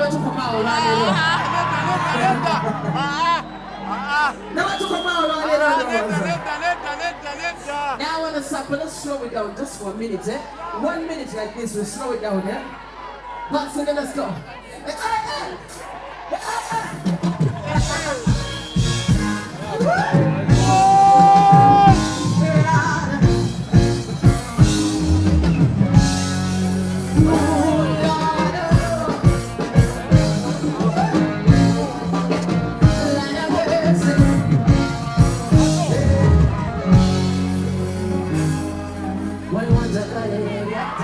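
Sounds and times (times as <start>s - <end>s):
live band playing: 0.0s - 6.4s, 15.6s - 41.0s
steady drum beat: 15.0s - 40.4s.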